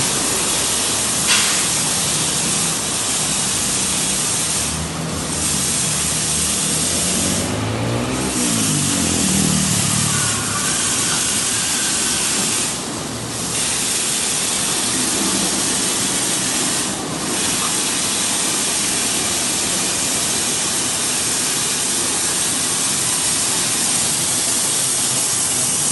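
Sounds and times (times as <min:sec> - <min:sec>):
blow dryer running: 0:00.0 - 0:25.8
low wavering pitched sound: 0:06.9 - 0:11.4.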